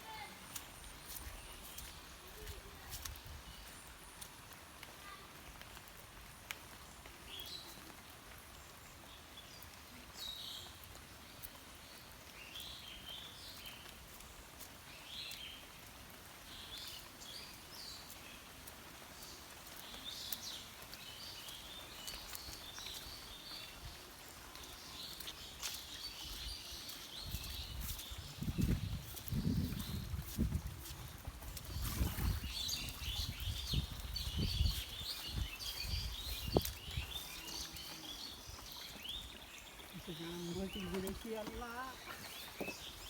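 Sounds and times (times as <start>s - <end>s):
small birds chirping: 0.0s - 5.8s, 6.8s - 43.0s
water drips ticking: 16.7s - 43.0s.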